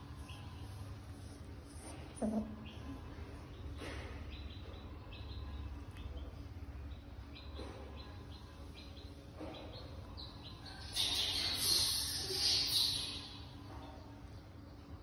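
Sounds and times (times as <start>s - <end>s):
low steady hum: 0.0s - 15.0s
faint bird chirps: 2.2s - 14.2s.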